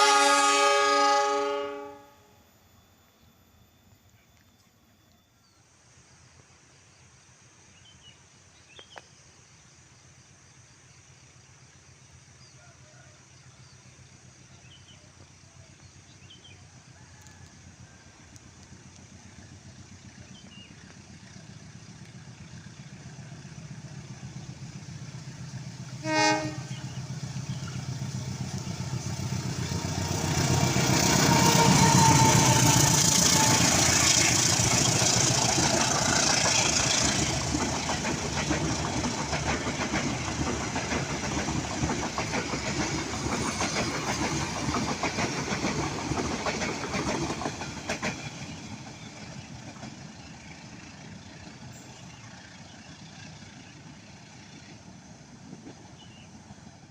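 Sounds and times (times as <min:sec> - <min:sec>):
train horn blast: 0:00.0 - 0:02.5, 0:25.9 - 0:34.5
diesel locomotive engine hum: 0:00.0 - 0:56.9
train carriages rolling on rails: 0:13.8 - 0:56.9.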